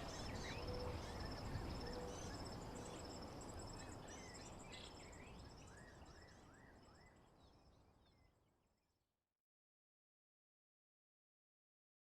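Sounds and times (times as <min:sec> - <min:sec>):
birdsong: 0:00.0 - 0:03.1.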